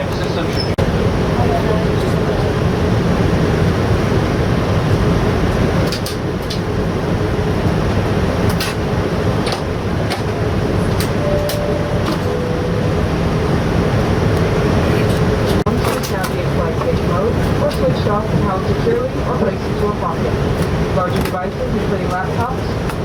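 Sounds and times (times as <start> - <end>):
airliner cabin hum: 0.0 - 23.0
two-note falling chime: 11.2 - 13.7.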